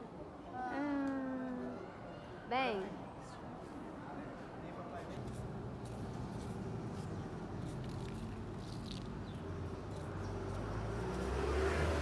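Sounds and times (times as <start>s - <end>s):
passing vehicle engine rumble: 5.5s - 12.0s.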